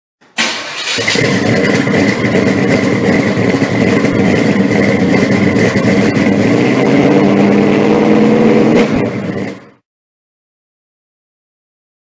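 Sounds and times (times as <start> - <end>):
car engine running: 0.4 - 9.8.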